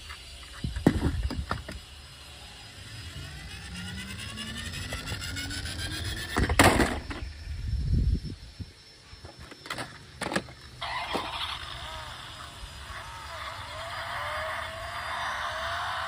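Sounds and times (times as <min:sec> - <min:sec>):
small motor whine rising: 0:00.0 - 0:16.0
toy cars clicking and knocking: 0:03.0 - 0:07.2, 0:09.4 - 0:16.0.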